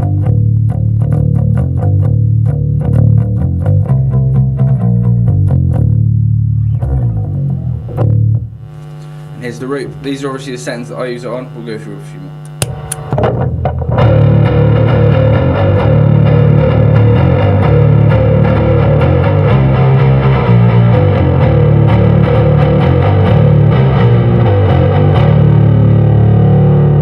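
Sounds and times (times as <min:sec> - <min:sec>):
distorted electric bass riff: 0:00.0 - 0:27.0.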